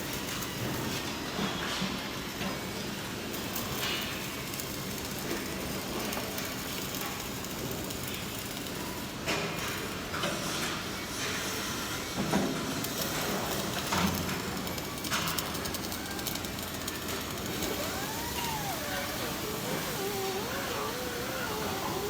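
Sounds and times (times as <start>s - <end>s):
welding arc crackling hiss: 12.2s - 22.0s.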